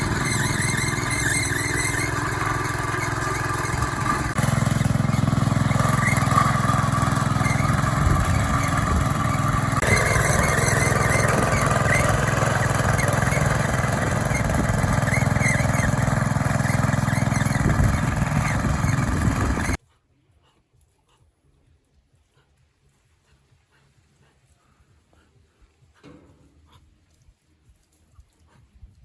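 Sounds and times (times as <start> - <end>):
vehicle engine running: 0.0 - 19.8.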